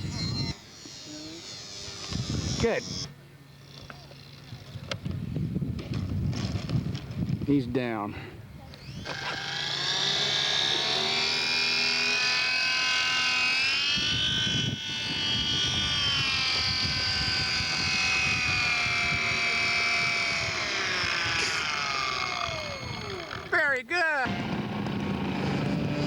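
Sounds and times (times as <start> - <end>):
model airplane motor droning: 0.0 - 5.2, 8.6 - 23.6, 24.2 - 26.0.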